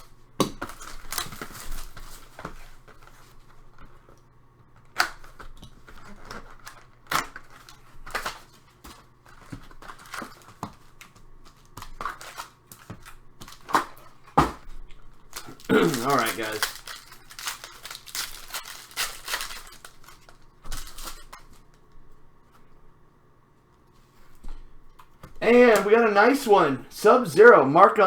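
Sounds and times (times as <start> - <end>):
cards clicking and tapping: 0.4 - 3.2, 3.8 - 21.8
paper rustling: 0.6 - 22.7.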